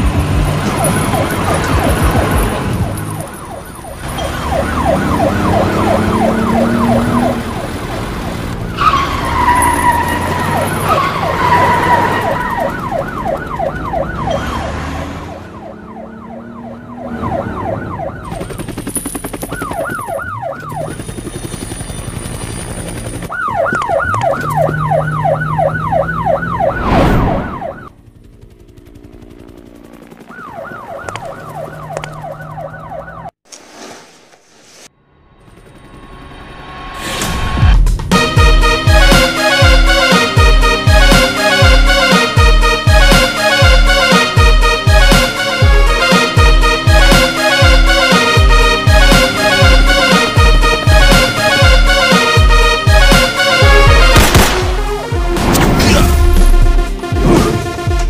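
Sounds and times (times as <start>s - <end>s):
police siren wailing: 0.0s - 18.8s, 19.4s - 22.4s, 23.1s - 28.0s, 30.2s - 33.4s, 38.1s - 58.0s
engine noise: 0.0s - 19.7s.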